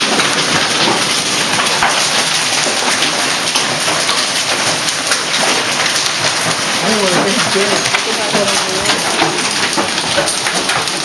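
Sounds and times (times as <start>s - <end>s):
heavy rain hissing: 0.0s - 11.0s
raindrops hitting a surface: 0.0s - 11.0s.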